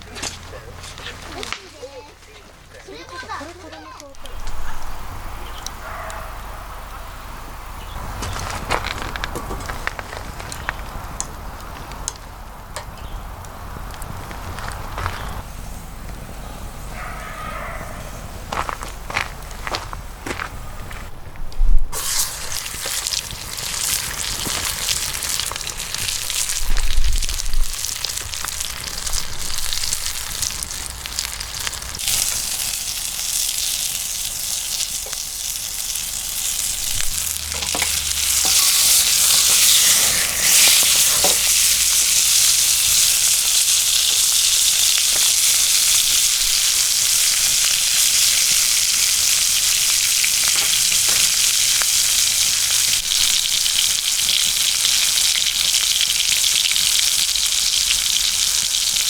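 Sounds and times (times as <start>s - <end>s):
food sizzling in a pan: 21.9s - 59.0s.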